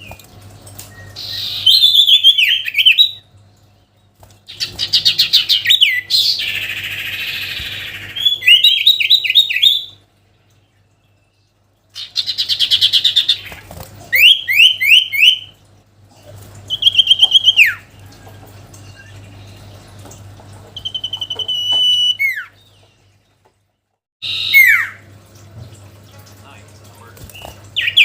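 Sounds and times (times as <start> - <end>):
bird singing whistled phrases: 0.9 - 3.2, 5.4 - 10.0, 14.2 - 15.5, 16.7 - 17.8, 20.8 - 22.6, 24.2 - 25.0
faint low hum: 24.9 - 28.0.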